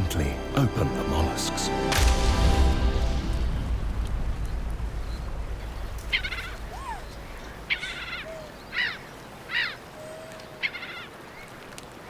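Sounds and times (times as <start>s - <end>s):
birds chirping: 3.0s - 12.0s.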